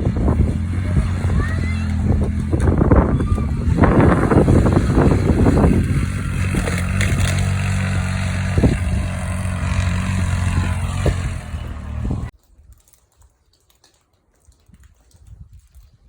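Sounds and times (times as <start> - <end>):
off-road vehicle engine running: 0.0 - 12.3.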